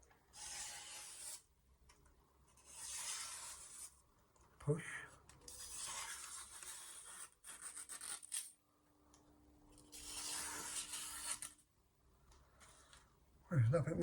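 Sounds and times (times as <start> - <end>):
knife cutting through paper: 0.3 - 1.4, 2.6 - 4.0, 5.5 - 8.6, 9.8 - 11.6.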